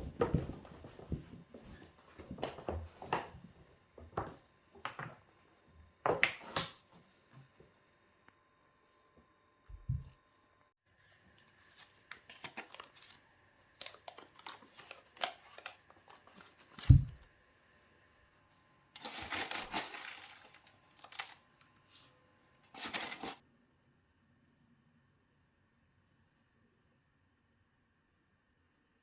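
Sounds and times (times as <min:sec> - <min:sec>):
rustling or crinkling: 0:11.0 - 0:17.3, 0:19.0 - 0:23.4.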